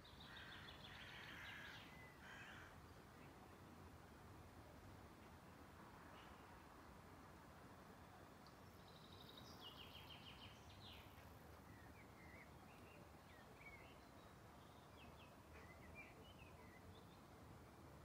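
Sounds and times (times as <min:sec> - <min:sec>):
low steady hiss: 0:00.0 - 0:18.0
small birds chirping: 0:08.4 - 0:17.4.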